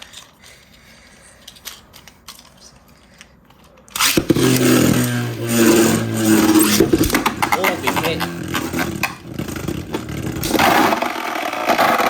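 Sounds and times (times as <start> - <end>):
plastic parts clicking: 0.0 - 5.2
spinning tops whirring: 4.0 - 12.0.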